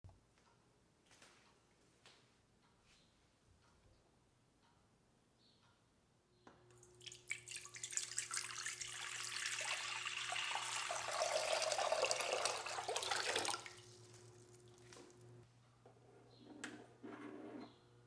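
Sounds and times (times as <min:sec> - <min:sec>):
water running from a tap: 0:07.0 - 0:14.0.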